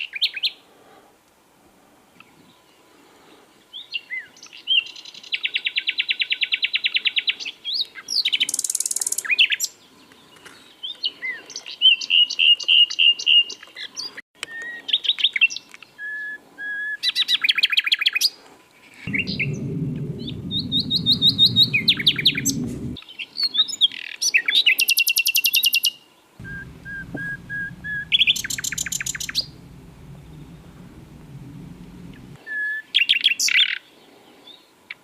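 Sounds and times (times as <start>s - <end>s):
nightingale singing: 26.4s - 32.2s.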